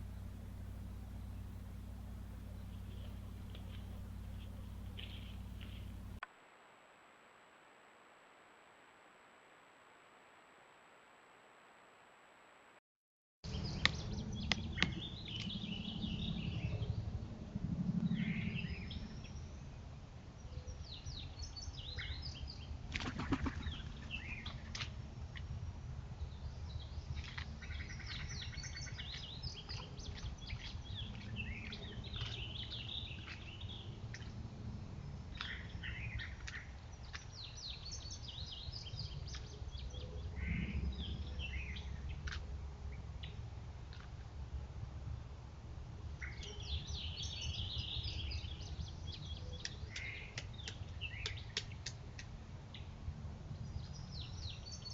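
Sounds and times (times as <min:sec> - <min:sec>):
songbirds chirping: 0:00.0 - 0:06.2, 0:13.5 - 0:17.2, 0:18.0 - 0:54.9
steady low rumble: 0:00.0 - 0:06.2, 0:13.5 - 0:50.3.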